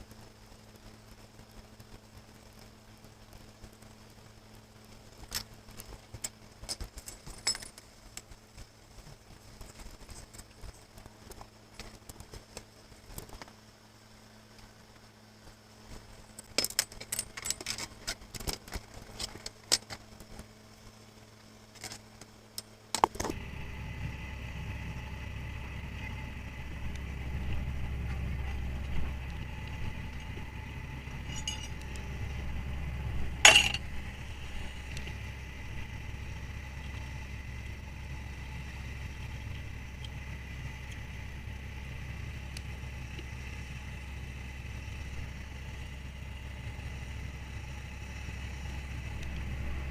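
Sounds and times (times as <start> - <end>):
faint machinery whine: 0.0 - 49.9
boat machinery droning: 22.5 - 49.9
gear clicking and clinking: 31.1 - 32.4, 33.2 - 35.2.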